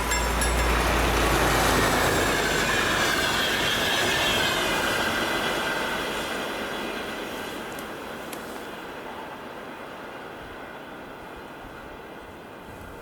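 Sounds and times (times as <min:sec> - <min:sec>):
wheel squeal: 0:00.0 - 0:07.5
train running on rails: 0:00.0 - 0:13.0.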